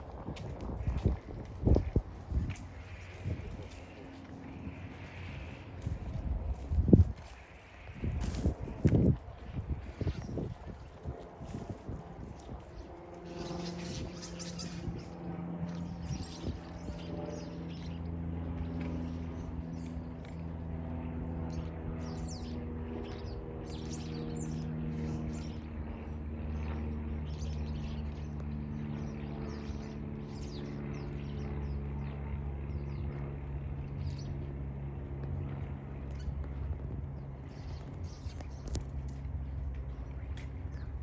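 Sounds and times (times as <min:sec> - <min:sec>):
steady low hum: 0:00.0 - 0:41.0
small birds chirping: 0:36.0 - 0:41.0.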